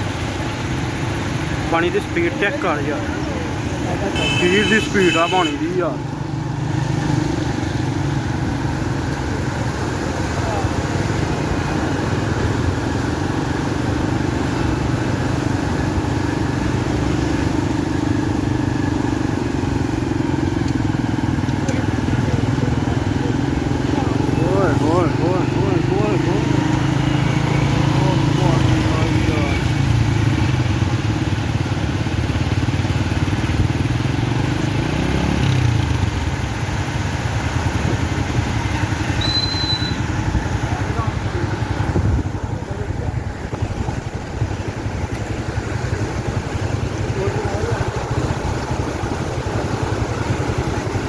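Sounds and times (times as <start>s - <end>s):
constant rushing noise: 0.0s - 51.0s.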